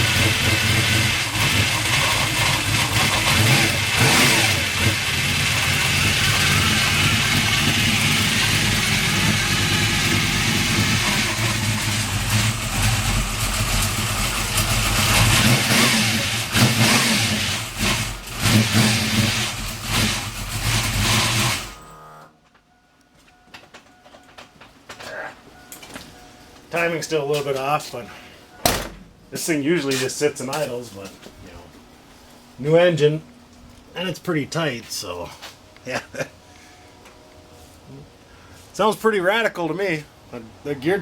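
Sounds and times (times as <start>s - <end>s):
car engine revving: 0.0s - 22.3s.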